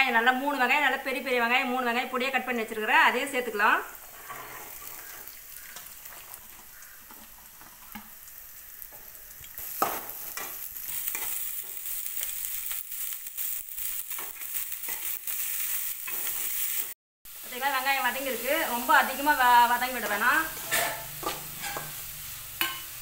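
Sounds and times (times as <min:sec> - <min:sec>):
onions sizzling in hot oil: 0:00.2 - 0:23.0
metal spatula scraping a pan: 0:04.0 - 0:05.8, 0:09.9 - 0:12.4, 0:20.0 - 0:22.9.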